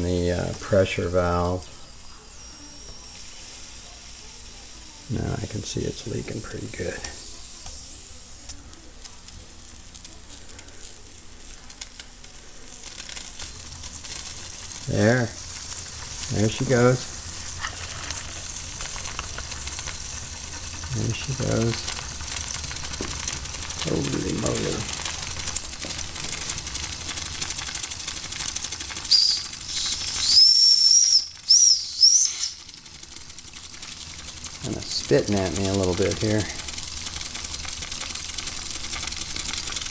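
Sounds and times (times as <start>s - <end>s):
steam hissing and sizzling: 0.0s - 39.9s
small crackling ticks: 8.4s - 39.9s
high steam whistle: 29.0s - 32.7s.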